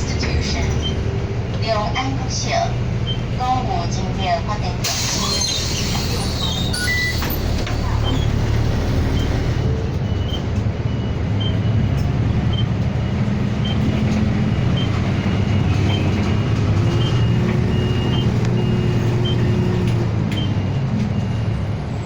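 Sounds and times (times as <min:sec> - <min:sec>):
bus engine running: 0:00.0 - 0:22.0
turn signal beeping: 0:05.2 - 0:08.3, 0:09.1 - 0:21.4.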